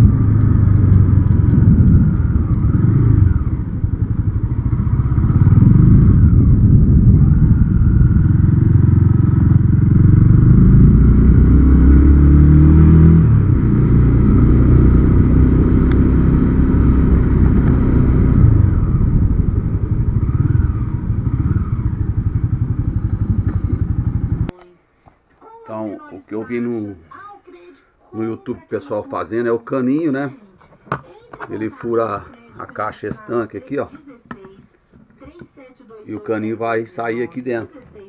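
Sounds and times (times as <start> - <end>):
motorcycle engine rumbling: 0.0 - 24.5.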